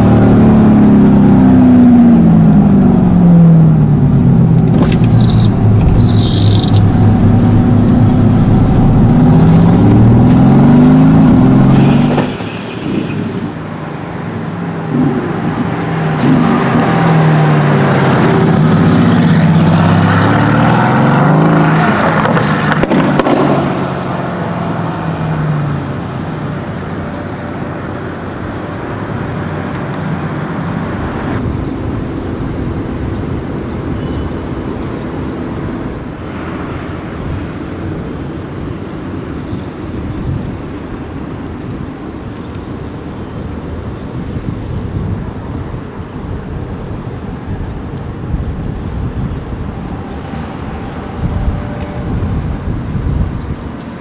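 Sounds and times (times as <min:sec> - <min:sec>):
car engine accelerating through gears: 0:00.0 - 0:28.2, 0:47.1 - 0:54.0.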